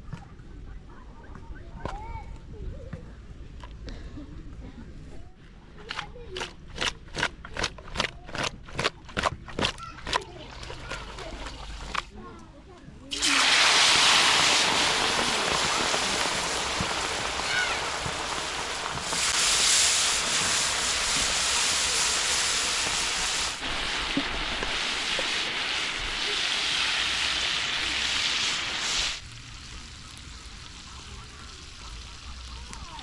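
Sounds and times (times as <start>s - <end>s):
water pouring and splashing: 9.6s - 12.2s, 13.1s - 33.0s.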